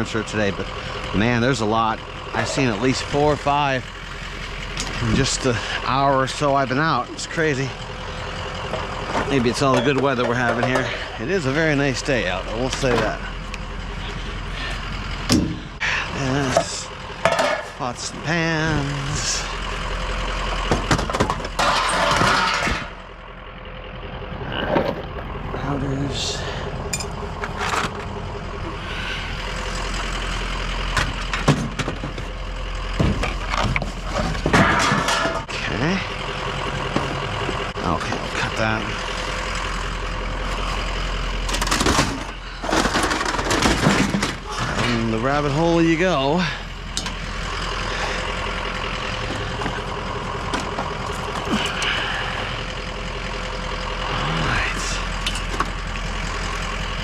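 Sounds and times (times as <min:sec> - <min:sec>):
road rumble: 0:00.0 - 0:57.0
vehicle engine idling: 0:00.0 - 0:57.0
sharp knocks and clanks: 0:08.7 - 0:11.1, 0:15.2 - 0:15.7, 0:16.5 - 0:18.2, 0:20.6 - 0:23.0, 0:30.9 - 0:32.3, 0:33.0 - 0:35.7.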